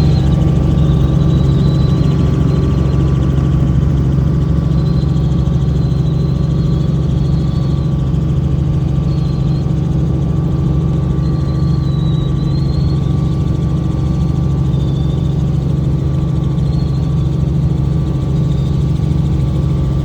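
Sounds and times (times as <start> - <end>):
helicopter engine and rotor drone: 0.0 - 20.0.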